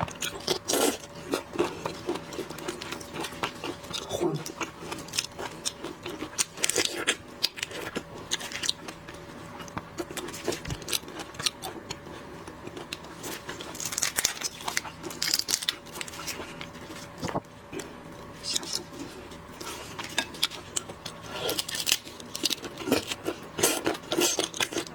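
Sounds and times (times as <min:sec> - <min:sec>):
close-up eating noise: 0:00.0 - 0:24.9
shellfish shells cracking: 0:13.5 - 0:16.2, 0:20.2 - 0:23.2.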